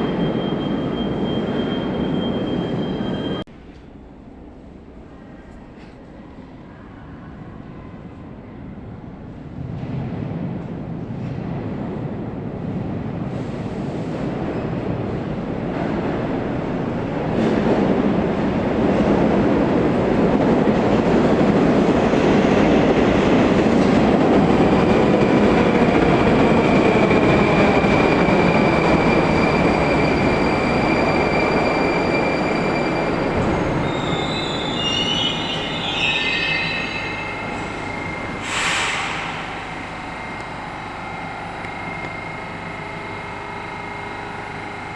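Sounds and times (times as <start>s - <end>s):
metro train rumbling: 0.0s - 44.9s
wheel squeals: 24.7s - 44.9s
faint gliding whine: 26.6s - 44.9s
short hiss: 38.4s - 39.9s.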